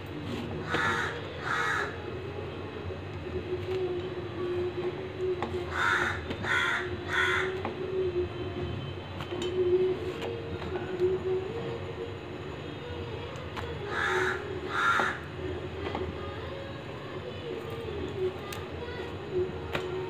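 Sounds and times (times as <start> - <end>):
wavering hum: 0.0 - 20.0
bird cawing: 0.6 - 2.0, 5.7 - 7.6, 13.9 - 15.3.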